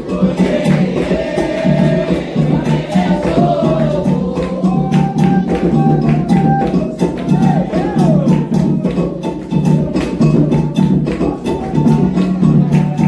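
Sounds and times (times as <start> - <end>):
group of voices chanting: 0.0 - 9.0
hand drums and percussion: 0.0 - 13.0.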